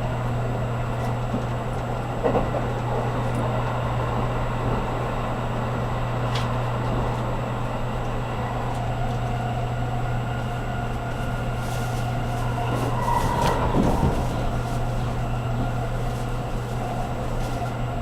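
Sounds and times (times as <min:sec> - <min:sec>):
train running hum: 0:00.0 - 0:18.0
wheel and rail noise: 0:00.0 - 0:18.0.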